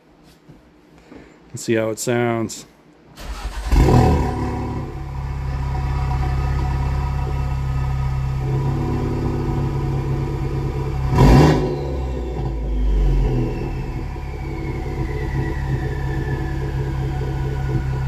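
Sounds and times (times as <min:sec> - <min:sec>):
loud engine burst: 0:03.2 - 0:06.3, 0:08.4 - 0:18.0
car engine idling: 0:03.2 - 0:18.0.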